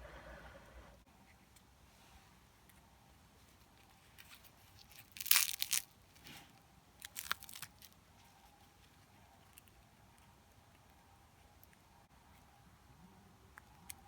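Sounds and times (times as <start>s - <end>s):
crinkling crunching rustles: 3.4s - 9.8s.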